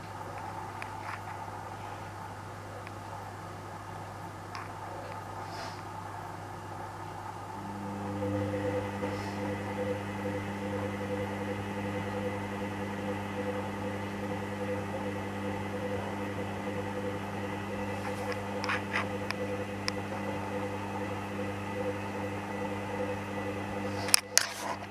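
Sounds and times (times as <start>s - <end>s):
washing machine motor humming: 6.2s - 24.9s.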